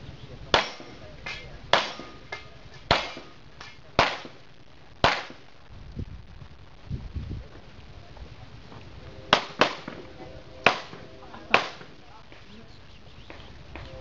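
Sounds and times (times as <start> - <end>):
loud pistol shots: 0.5 - 1.0, 1.7 - 2.3, 2.9 - 3.4, 4.0 - 4.4, 5.0 - 5.5, 9.3 - 10.0, 10.6 - 12.0
faint gunshot cracks: 5.0 - 5.4.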